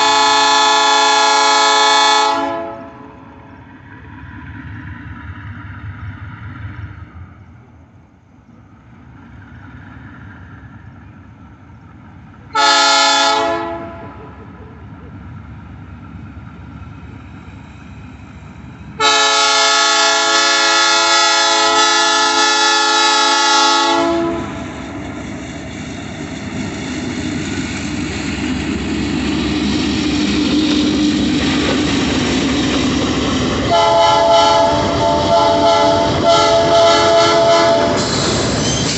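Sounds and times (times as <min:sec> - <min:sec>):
train air horn: 0:00.0 - 0:03.2, 0:12.5 - 0:14.2, 0:19.0 - 0:24.9, 0:33.7 - 0:38.1
passing train rumble: 0:00.0 - 0:38.9.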